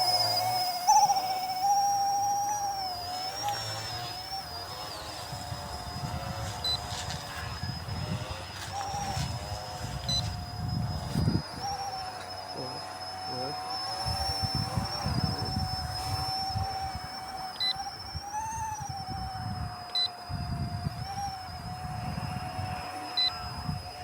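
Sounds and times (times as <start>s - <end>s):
rc helicopter rotor whine: 0.0s - 24.0s.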